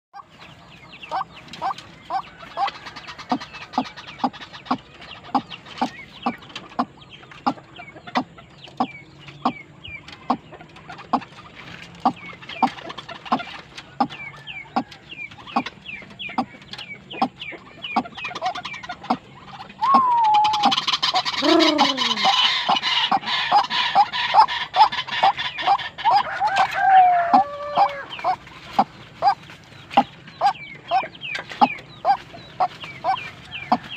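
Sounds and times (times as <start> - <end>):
waterhen clucking calls: 0.1 - 33.9
harsh calling with croaks: 16.3 - 29.4.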